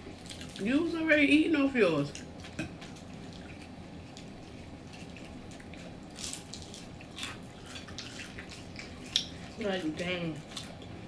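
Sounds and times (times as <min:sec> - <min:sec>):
low background hum: 0:00.0 - 0:11.0
wet chewing and lip smacking: 0:02.2 - 0:11.0.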